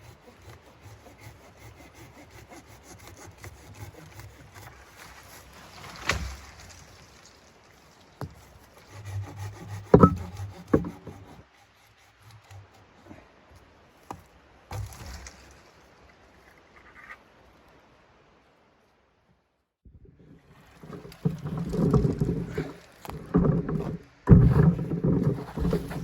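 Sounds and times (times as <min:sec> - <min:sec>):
wooden knocks and rubbing: 0:08.2 - 0:11.4, 0:20.7 - 0:26.0.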